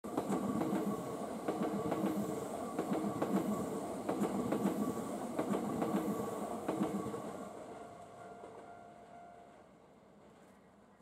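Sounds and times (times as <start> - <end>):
train wheels rumbling on rails: 0.1 - 8.8.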